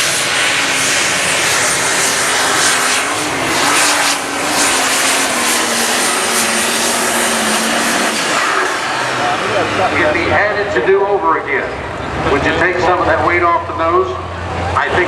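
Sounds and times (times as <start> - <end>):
diesel tractor engine at full power: 0.0 - 15.0.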